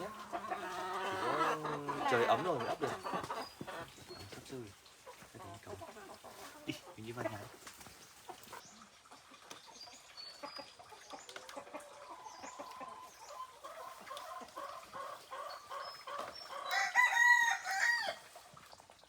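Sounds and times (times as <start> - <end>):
chickens clucking: 0.0 - 19.0
rooster crowing: 16.7 - 18.2.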